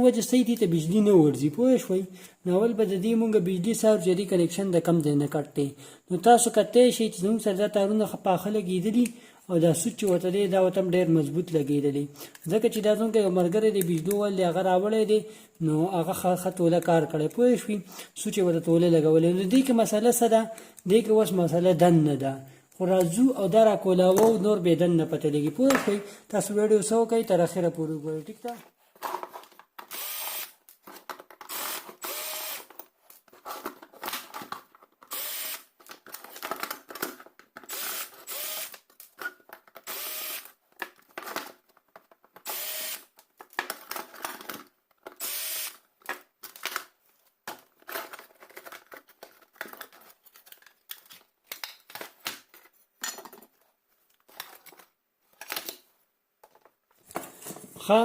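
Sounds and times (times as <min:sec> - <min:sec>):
power driver whirring: 0:29.9 - 0:30.5, 0:31.5 - 0:32.6, 0:37.7 - 0:38.8, 0:39.9 - 0:40.5, 0:42.4 - 0:43.0, 0:45.2 - 0:45.8.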